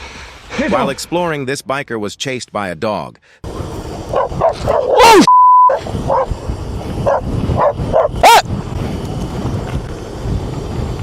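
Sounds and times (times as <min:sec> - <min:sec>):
dog barking and yelping: 0:04.1 - 0:06.3, 0:07.0 - 0:08.4
censor bleep: 0:05.2 - 0:05.8
background rumble: 0:05.7 - 0:11.0.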